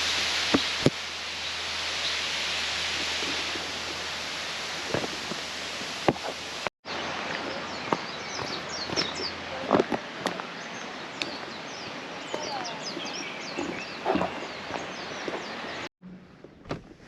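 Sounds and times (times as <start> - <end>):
waterfall rushing: 0.0 - 15.9
birds chirping: 6.1 - 15.9.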